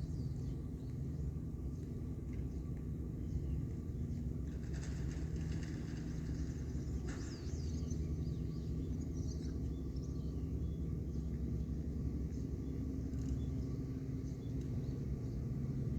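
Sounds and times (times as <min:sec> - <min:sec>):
boat engines rumbling: 0:04.3 - 0:10.4.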